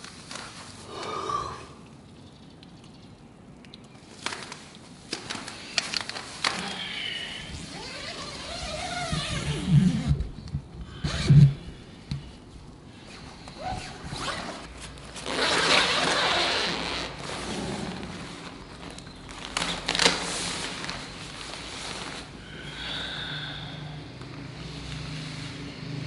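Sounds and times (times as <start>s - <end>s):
rustling: 13.0s - 22.5s
zipper being pulled: 13.6s - 18.6s.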